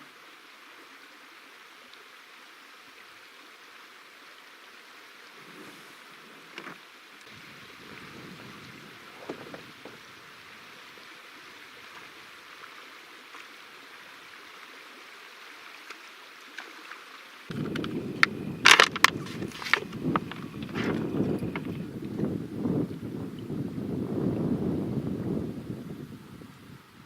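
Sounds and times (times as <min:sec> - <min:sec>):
water lapping on canoe hull: 0:05.3 - 0:12.7, 0:15.8 - 0:25.2
wind buffeting microphone: 0:07.3 - 0:10.7, 0:17.5 - 0:27.0.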